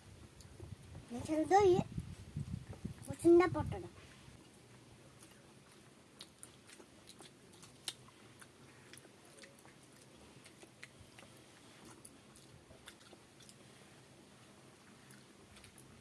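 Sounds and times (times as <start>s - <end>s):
person chewing food: 4.5s - 16.0s.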